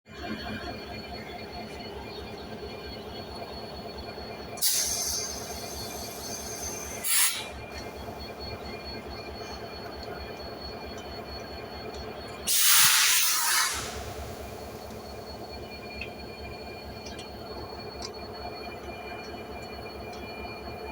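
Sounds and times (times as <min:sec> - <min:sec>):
diesel locomotive idling: 0:00.1 - 0:20.9
air brake hiss: 0:04.6 - 0:07.5, 0:12.5 - 0:14.4.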